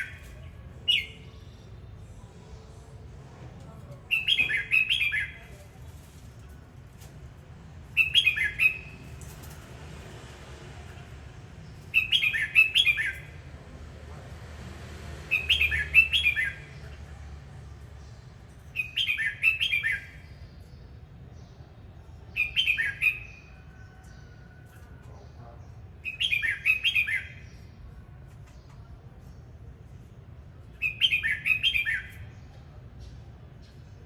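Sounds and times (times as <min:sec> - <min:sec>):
bird singing warbling phrases: 0:00.0 - 0:01.4, 0:04.1 - 0:05.5, 0:08.0 - 0:09.0, 0:11.9 - 0:13.4, 0:15.3 - 0:17.1, 0:18.7 - 0:21.7, 0:22.3 - 0:23.6, 0:25.2 - 0:27.8, 0:30.8 - 0:33.9.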